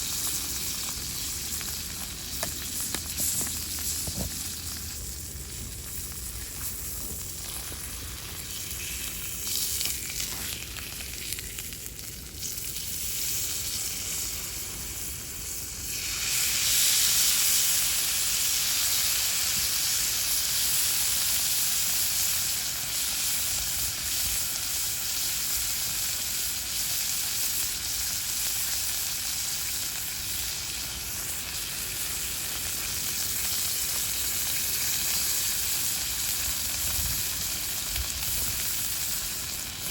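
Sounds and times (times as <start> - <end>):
steak sizzling: 0.0 - 39.9.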